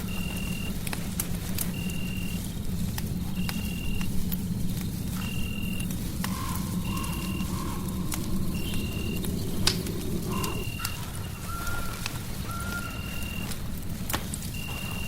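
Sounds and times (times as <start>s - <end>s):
fireplace crackling: 0.0s - 15.0s
fainter lower calls: 5.2s - 13.4s.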